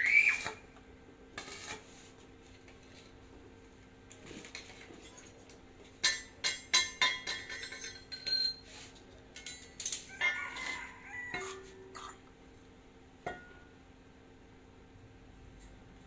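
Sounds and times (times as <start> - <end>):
metal tools clinking: 6.0 - 8.8.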